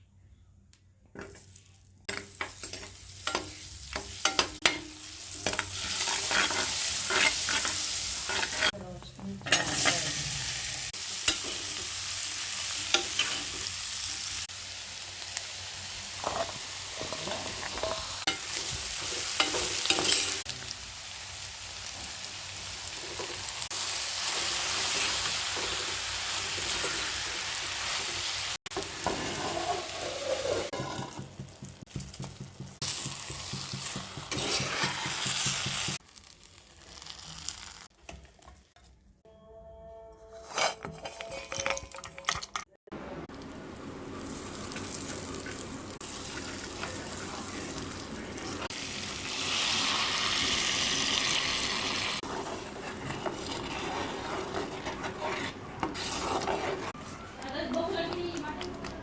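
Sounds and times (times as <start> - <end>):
spoon scraping a pan: 1.2 - 8.8, 9.4 - 12.0, 12.8 - 13.7, 16.2 - 20.5, 28.7 - 31.3, 32.8 - 36.0, 40.2 - 42.6, 52.2 - 57.8
food sizzling in a pan: 1.2 - 37.9, 43.3 - 58.8.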